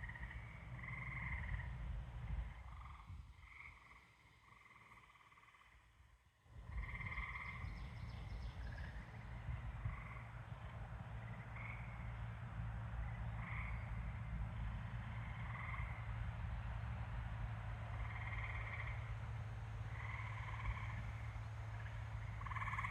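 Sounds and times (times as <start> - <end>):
frogs calling: 0.0 - 1.7, 2.5 - 5.9, 6.6 - 8.0, 8.6 - 10.4, 11.3 - 12.2, 13.0 - 14.2, 15.1 - 16.1, 17.9 - 22.9
low rumble with hum: 0.0 - 5.7, 6.4 - 22.9.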